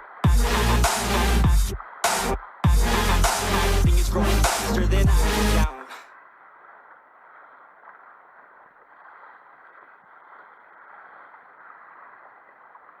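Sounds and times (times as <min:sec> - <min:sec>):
water washing against hull: 0:06.2 - 0:13.0.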